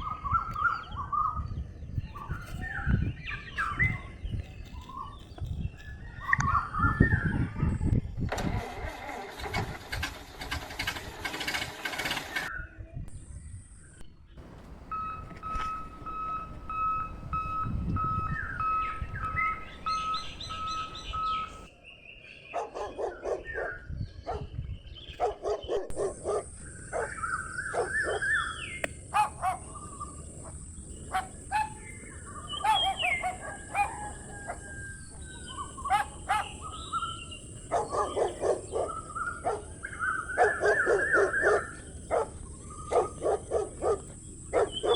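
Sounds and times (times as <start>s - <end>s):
birds chirping: 14.4s - 21.7s, 26.5s - 44.9s
electronic beeping: 14.4s - 21.7s
dog barking: 22.5s - 24.5s, 25.2s - 28.4s, 29.1s - 29.7s, 31.1s - 31.8s, 32.6s - 34.6s, 35.8s - 36.6s, 37.7s - 44.9s.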